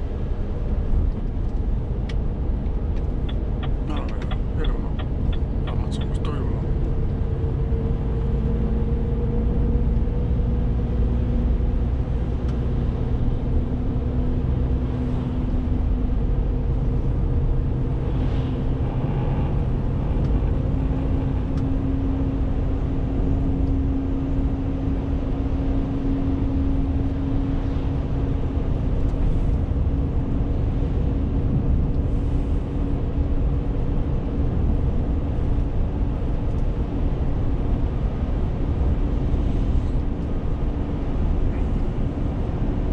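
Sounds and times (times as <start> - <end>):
road noise: 0.0 - 42.9
diesel truck engine running: 1.8 - 9.8.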